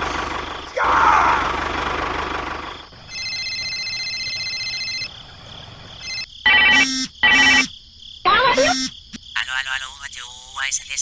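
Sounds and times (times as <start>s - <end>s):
small engine running: 0.0s - 5.1s
high electronic beep tone: 6.5s - 7.7s, 8.5s - 8.9s.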